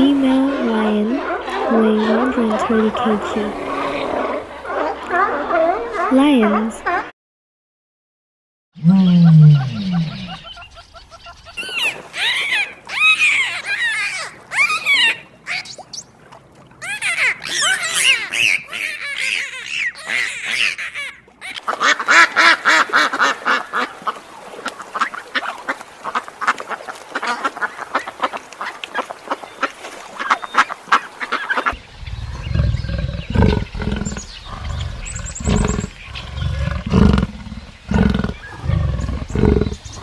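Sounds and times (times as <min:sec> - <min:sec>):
high-pitched animal calls: 0:08.8 - 0:16.0, 0:16.8 - 0:21.6, 0:31.6 - 0:40.0
lion roaring: 0:31.8 - 0:40.0.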